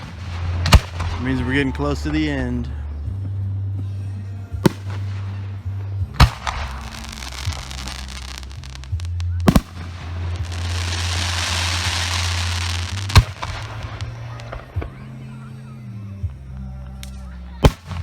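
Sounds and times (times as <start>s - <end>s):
hissing crackle: 4.6s - 15.4s, 16.3s - 18.0s
firework shells banging: 6.2s - 15.0s.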